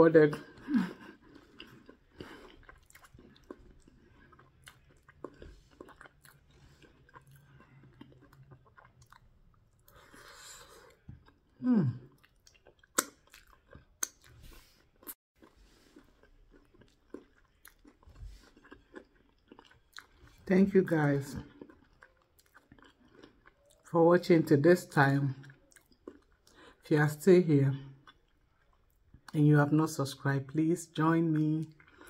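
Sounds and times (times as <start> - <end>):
wet chewing mouth sounds: 0.5 - 20.4, 21.4 - 23.9, 25.4 - 26.8.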